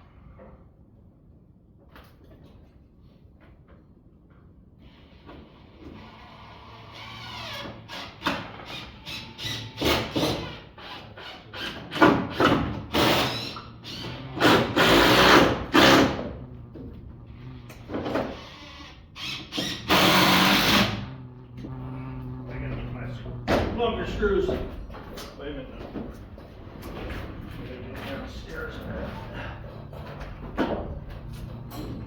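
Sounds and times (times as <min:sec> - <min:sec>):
power drill driving screws into wood: 0:05.9 - 0:16.2, 0:18.1 - 0:21.0.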